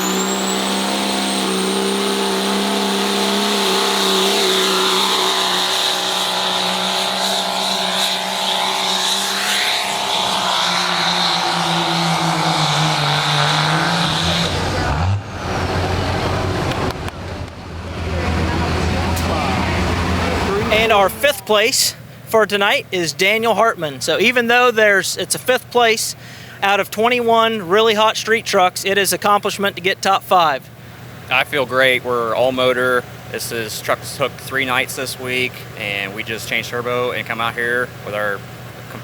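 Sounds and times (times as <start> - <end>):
turbo whistle: 0.0 - 15.0
diesel engine at high revs: 0.0 - 22.4, 30.6 - 39.0.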